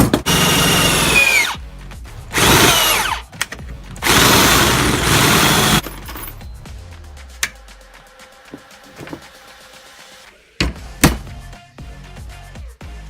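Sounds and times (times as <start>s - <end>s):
power drill boring sheet metal: 0.0s - 1.6s, 2.4s - 3.2s, 4.0s - 5.8s.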